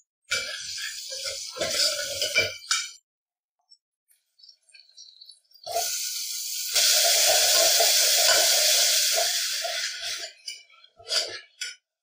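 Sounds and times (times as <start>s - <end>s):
tomatoes sizzling in hot oil: 0.3s - 2.9s, 5.5s - 10.7s
pot clattering: 0.3s - 3.0s, 6.8s - 11.8s.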